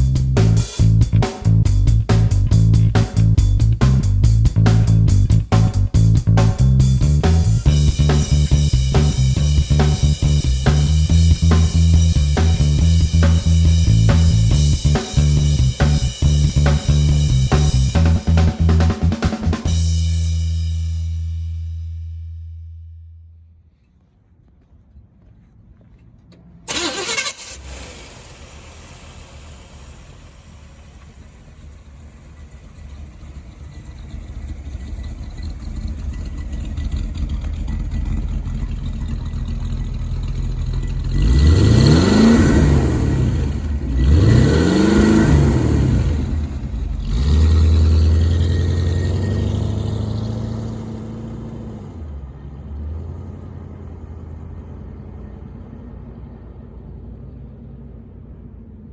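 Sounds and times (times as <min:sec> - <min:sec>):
car engine cranking and starting: 0:00.0 - 0:21.1, 0:26.0 - 0:58.8
engine revving: 0:00.0 - 0:21.4, 0:26.7 - 0:55.1
car engine idling: 0:00.0 - 0:23.6, 0:26.2 - 0:58.9.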